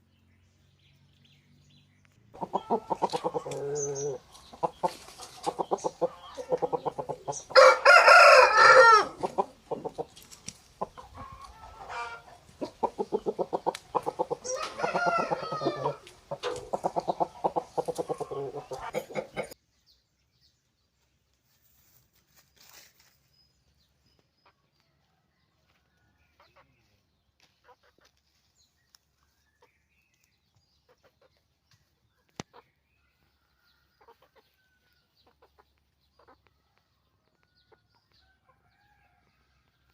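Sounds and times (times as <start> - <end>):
hens clucking: 2.3 - 19.6, 26.3 - 28.4, 30.8 - 33.3
roosters crowing: 2.4 - 10.2, 11.0 - 19.6.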